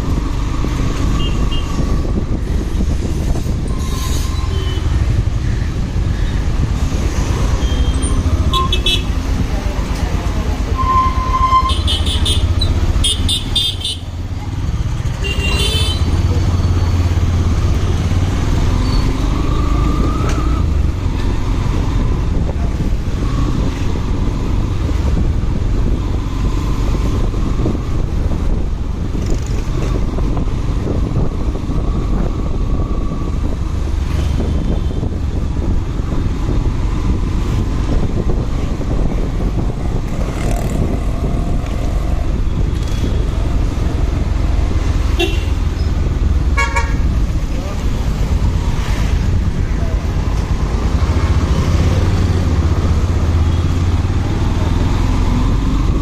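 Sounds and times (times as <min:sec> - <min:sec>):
road noise: 0:00.0 - 0:56.0
surrounding vehicles: 0:00.0 - 0:56.0
motorcycle engine rumble: 0:11.7 - 0:56.0.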